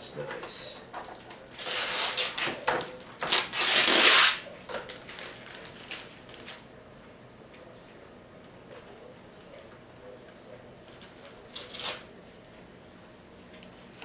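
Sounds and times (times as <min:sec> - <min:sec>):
plastic packaging rustling: 0:01.0 - 0:06.6.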